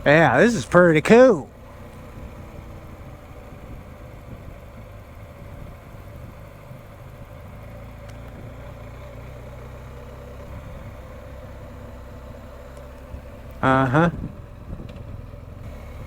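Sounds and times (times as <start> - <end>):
motorcycle engine running: 0.0 - 16.0
road noise: 0.0 - 16.0.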